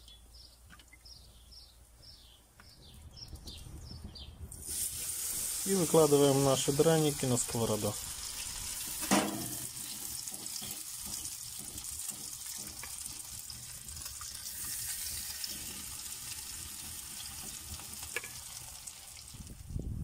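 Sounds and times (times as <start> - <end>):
batter sizzling in hot oil: 4.6 - 19.7.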